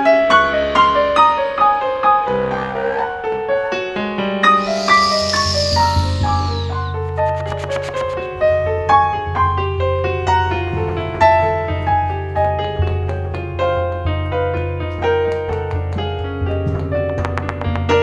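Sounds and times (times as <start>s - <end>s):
low bass notes: 4.6s - 8.8s.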